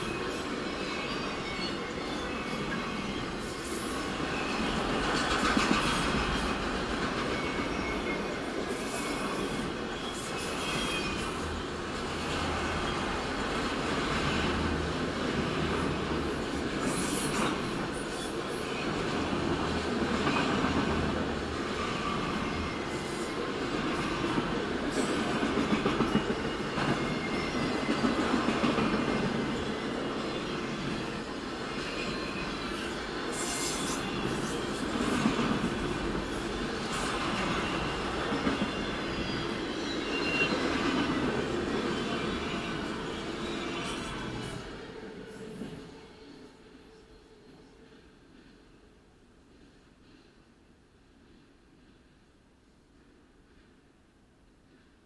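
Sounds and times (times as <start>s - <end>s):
train wheels rumbling on rail: 0.0s - 46.0s
faint wheel squeal: 7.3s - 11.6s, 37.4s - 41.0s.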